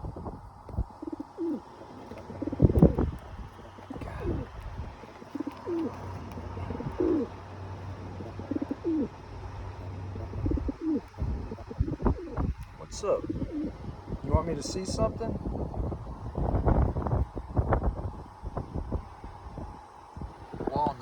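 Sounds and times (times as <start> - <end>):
pigeon cooing: 0.7 - 14.2.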